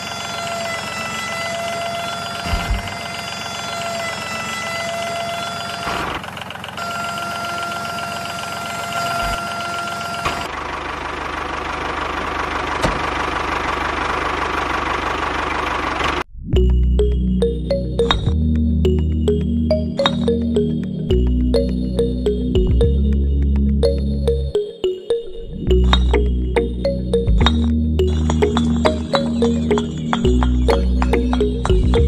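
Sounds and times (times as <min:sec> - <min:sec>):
small electric motor whining: 0:00.0 - 0:10.5.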